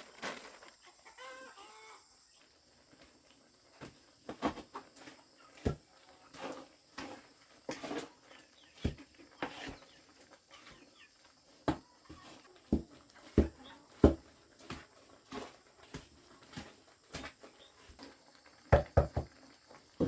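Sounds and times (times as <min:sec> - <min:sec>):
chickens clucking: 0:00.2 - 0:18.4
sharp knocks and taps: 0:18.7 - 0:19.4.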